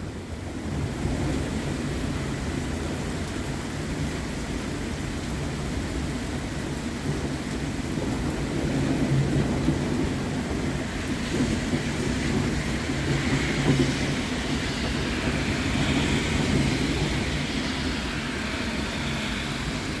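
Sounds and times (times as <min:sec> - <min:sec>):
steady rain: 0:00.0 - 0:20.0
rolling thunder rumble: 0:06.6 - 0:20.0.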